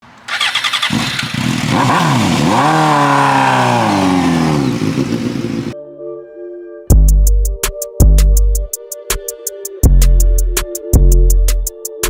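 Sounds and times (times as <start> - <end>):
motorcycle engine revving: 0.1 - 5.8.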